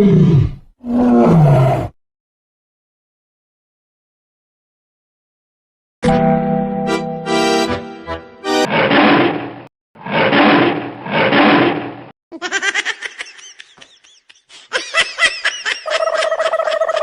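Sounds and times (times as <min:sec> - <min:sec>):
tiger roar: 0:00.0 - 0:02.0, 0:08.6 - 0:12.0.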